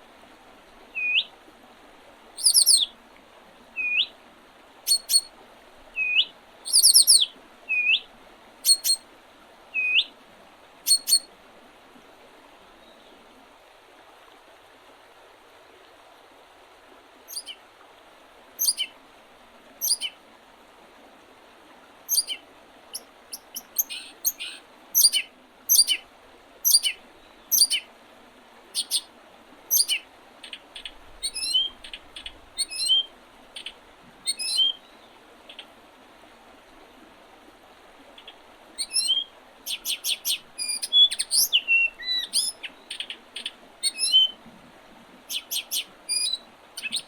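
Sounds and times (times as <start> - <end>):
faint steady hiss: 0.0 - 47.0
small songbirds chirping: 0.9 - 1.3, 2.4 - 2.9, 3.8 - 4.1, 4.9 - 5.3, 5.9 - 9.0, 10.9 - 11.3, 17.3 - 17.6, 18.6 - 18.9, 19.8 - 20.2, 22.1 - 26.0, 26.6 - 27.9, 28.8 - 29.1, 29.7 - 35.6, 38.2 - 44.4, 45.3 - 47.0.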